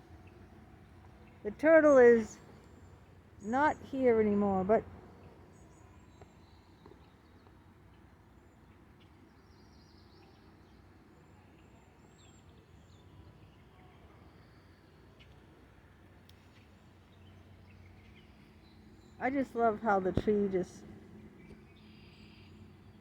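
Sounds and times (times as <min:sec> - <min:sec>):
faint high bird chirps: 0:21.4 - 0:23.0.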